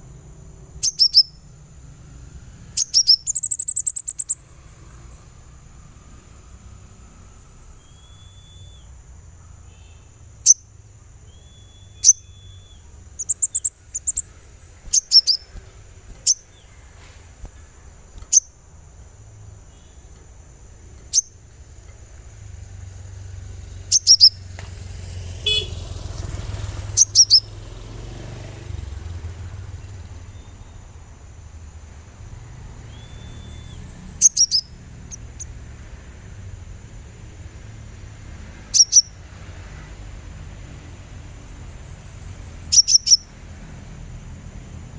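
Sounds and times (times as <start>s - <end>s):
bird chirping high: 0.7s - 28.8s, 32.8s - 35.6s, 38.6s - 39.3s, 41.8s - 43.4s.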